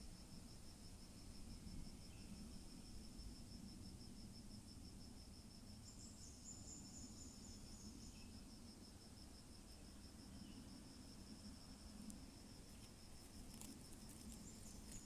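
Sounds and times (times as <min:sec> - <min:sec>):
faint insects chirping: 0:00.0 - 0:15.0
higher insect trill: 0:10.4 - 0:15.0.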